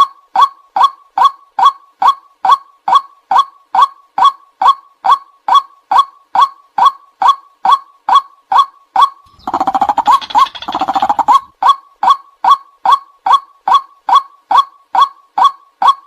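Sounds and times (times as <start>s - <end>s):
bird rapid chattering: 9.3s - 11.5s
bird sharp kwak calls: 9.3s - 11.5s.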